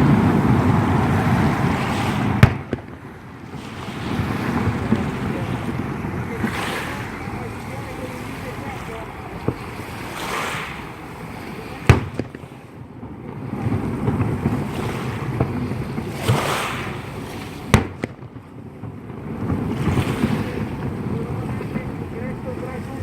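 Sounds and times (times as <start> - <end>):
firework bangs: 0.0 - 23.0
low surging rumble: 0.0 - 23.0
faint firework pops: 1.9 - 7.3, 9.4 - 10.9, 11.8 - 21.9.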